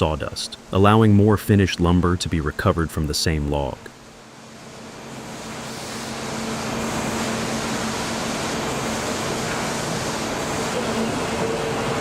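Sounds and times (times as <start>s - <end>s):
sawmill machinery running: 4.8s - 12.0s.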